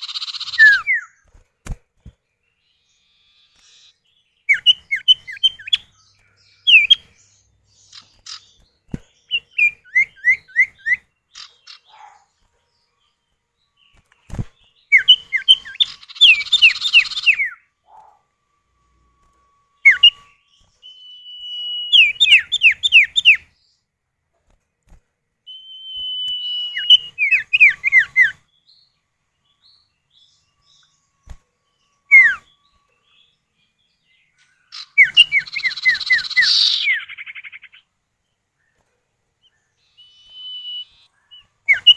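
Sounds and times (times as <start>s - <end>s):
bird whistled calls: 0.0s - 1.2s, 3.0s - 5.9s, 9.3s - 12.2s, 14.9s - 18.2s, 19.8s - 23.5s, 25.5s - 28.4s, 32.1s - 32.6s, 34.6s - 37.8s, 39.8s - 41.9s
long drawn-out bird whistle: 0.0s - 1.3s, 14.9s - 23.5s, 25.4s - 28.9s, 29.5s - 33.4s, 34.4s - 37.8s, 39.4s - 41.9s.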